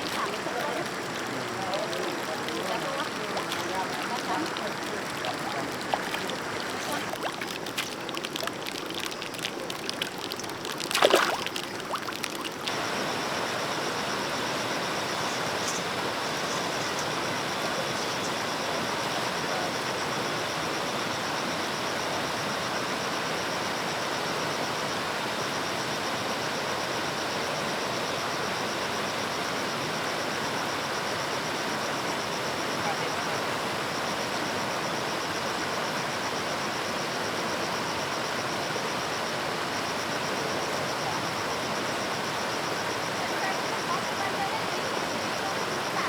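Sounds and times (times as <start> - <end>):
water flowing: 0.0 - 19.8
loud sharp splash: 10.8 - 12.0.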